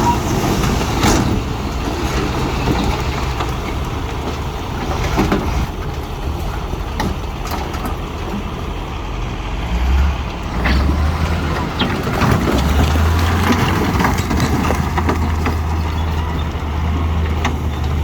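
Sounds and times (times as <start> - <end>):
diesel earthmoving machinery: 0.0 - 18.0
knocks and clatters: 10.4 - 18.0.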